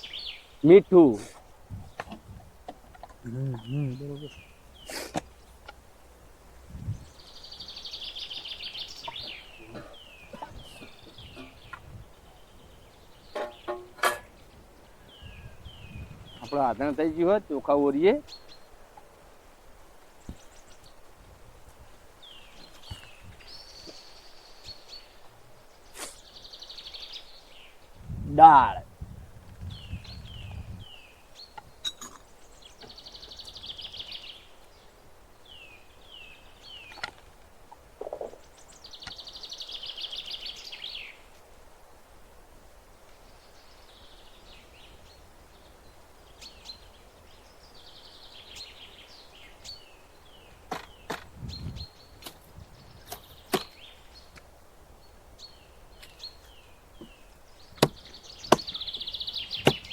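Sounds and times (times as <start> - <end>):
birds chirping: 0.0 - 59.9
rattling bird trills: 13.3 - 14.5.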